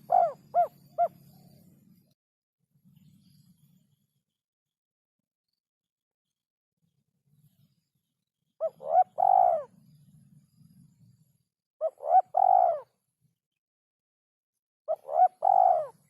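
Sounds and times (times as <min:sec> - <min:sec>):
dove cooing: 0:00.0 - 0:01.4, 0:08.6 - 0:09.8, 0:11.8 - 0:13.0, 0:14.9 - 0:16.0.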